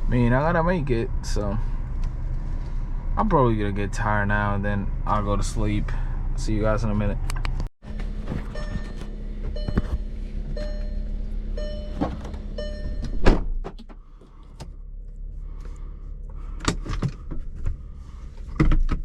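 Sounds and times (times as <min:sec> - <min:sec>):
car interior hum: 0:00.0 - 0:19.0.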